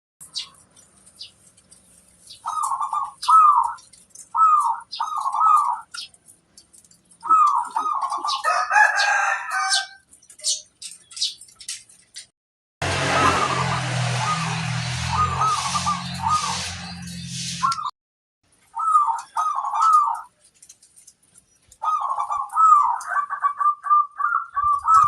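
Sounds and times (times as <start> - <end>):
dove cooing: 2.3 - 6.0, 7.2 - 9.8, 13.0 - 16.6, 18.8 - 20.3, 21.8 - 25.0
rough bird call: 12.8 - 17.9.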